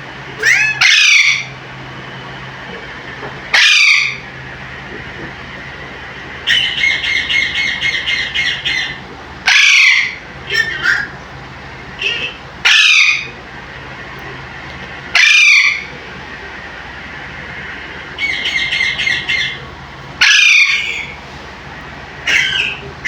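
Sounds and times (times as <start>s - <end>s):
parakeet repeated notes: 0.4s - 1.5s, 15.1s - 15.9s
parakeet squawking: 0.4s - 1.6s, 3.5s - 4.3s, 6.4s - 11.2s, 12.0s - 13.4s, 15.1s - 15.9s, 18.1s - 21.2s, 22.2s - 23.0s.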